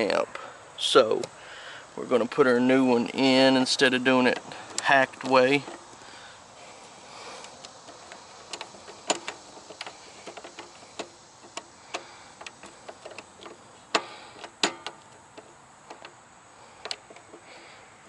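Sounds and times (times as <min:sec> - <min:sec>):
clicks and metal taps: 0:04.2 - 0:06.0, 0:07.3 - 0:16.2, 0:16.8 - 0:17.7.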